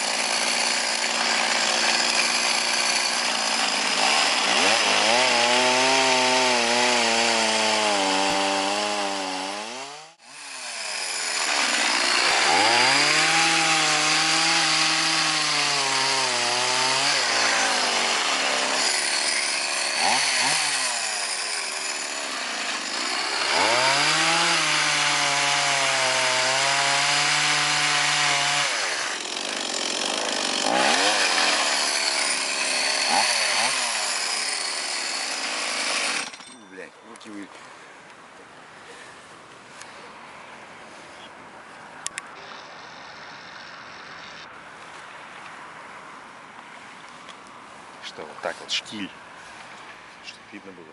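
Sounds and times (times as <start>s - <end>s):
chainsaw engine driving an auger: 0.0s - 36.6s.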